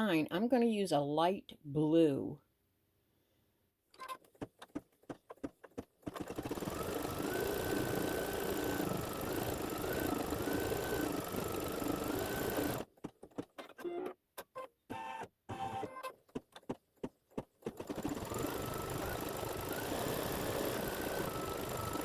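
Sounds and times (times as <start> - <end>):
embroidery machine stitching: 4.3 - 13.6, 17.6 - 22.0
embroidery machine clicks: 5.4 - 13.5, 17.6 - 22.0.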